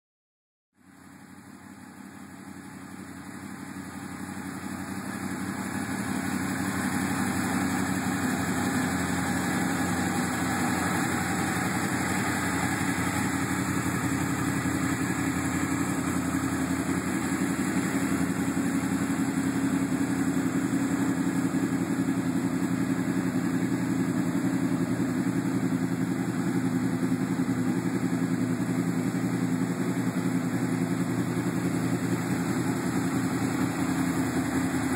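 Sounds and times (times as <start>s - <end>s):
motorcycle engine idling: 0.8s - 34.9s.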